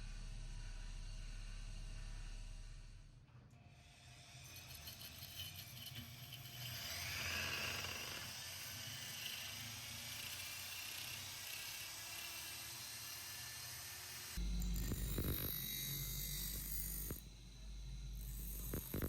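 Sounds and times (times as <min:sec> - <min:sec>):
low rumble: 0:00.0 - 0:03.3, 0:14.4 - 0:18.9
power tool whirring on metal: 0:04.4 - 0:15.6.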